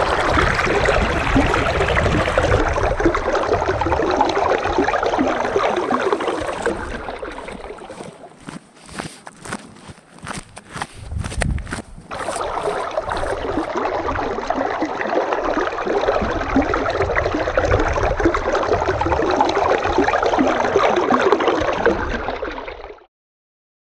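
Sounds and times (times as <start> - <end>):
stream water rushing: 0.0 - 21.4.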